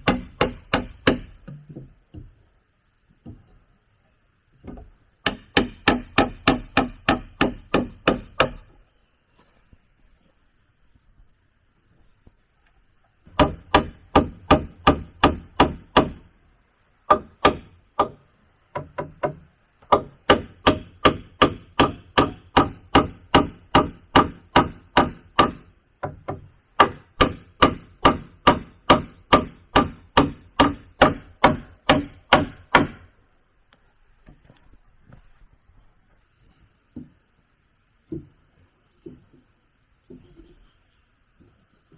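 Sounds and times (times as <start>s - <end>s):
tool striking wood: 0.0s - 2.3s, 4.6s - 8.8s, 13.3s - 16.2s, 17.1s - 33.1s.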